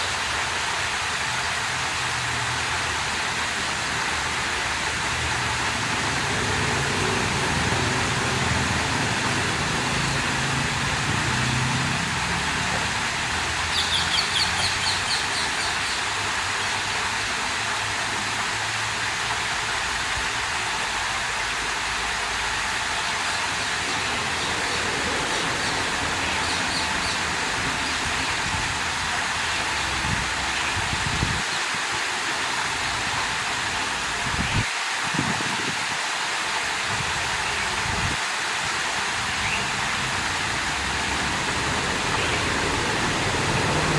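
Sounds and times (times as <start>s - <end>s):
water rushing: 0.0s - 43.9s.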